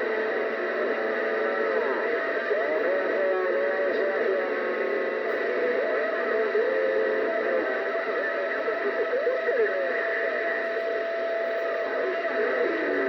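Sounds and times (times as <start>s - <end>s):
radio static hiss: 0.0s - 13.0s
garbled warbling radio tones: 1.4s - 13.0s.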